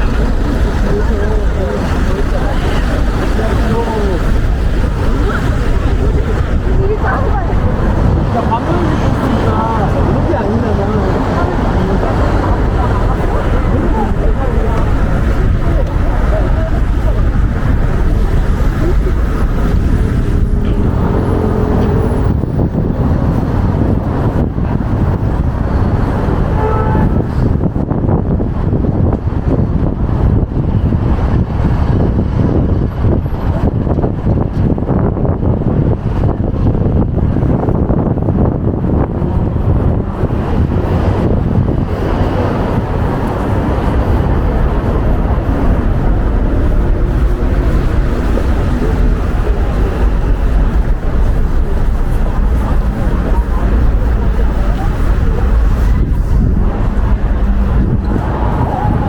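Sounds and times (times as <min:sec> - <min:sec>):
faint vehicle hum: 0:00.0 - 0:59.0
street traffic noise: 0:00.0 - 0:59.0
wind buffeting microphone: 0:00.0 - 0:59.0.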